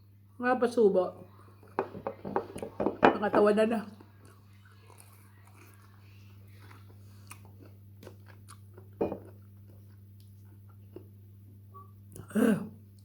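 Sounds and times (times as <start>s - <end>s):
person chewing: 4.0s - 11.2s.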